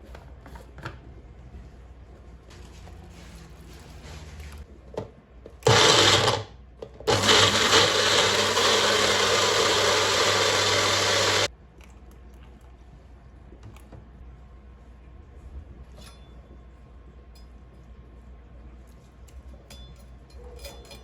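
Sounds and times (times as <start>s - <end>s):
electric blender running: 5.6s - 11.5s.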